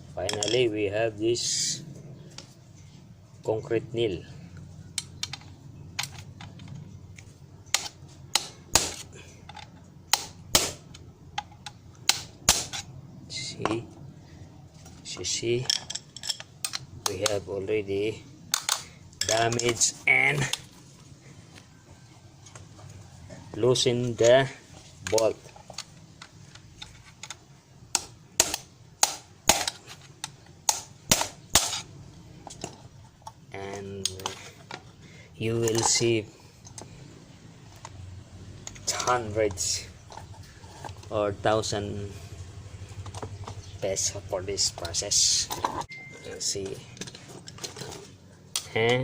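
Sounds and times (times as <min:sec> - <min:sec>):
hammer striking metal nail: 0:28.0 - 0:29.8.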